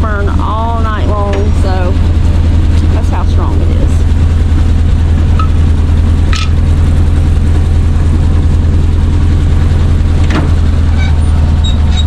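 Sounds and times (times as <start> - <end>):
truck engine idling: 0.0 - 12.0
high squeaks: 10.9 - 12.0.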